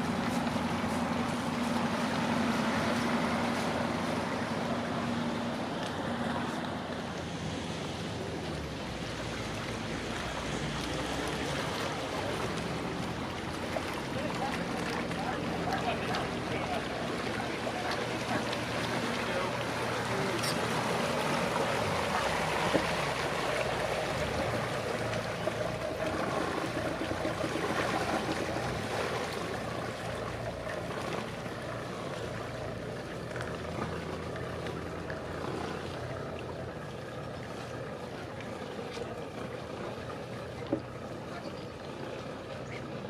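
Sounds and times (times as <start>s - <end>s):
boat engine droning: 0.0s - 43.0s
water wash: 0.0s - 43.0s.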